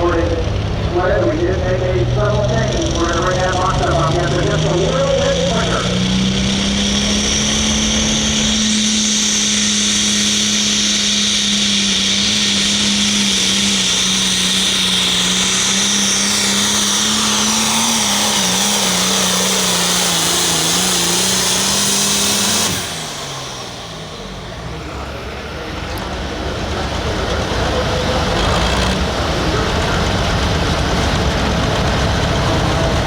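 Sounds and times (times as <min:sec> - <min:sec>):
tractor diesel engine at full throttle: 0:00.0 - 0:33.0
high turbo whistle: 0:06.0 - 0:24.8.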